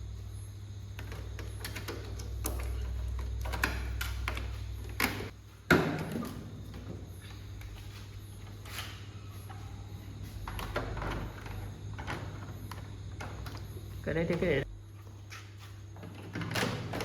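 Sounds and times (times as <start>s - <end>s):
hard parts clicking and knocking: 1.0s - 7.0s.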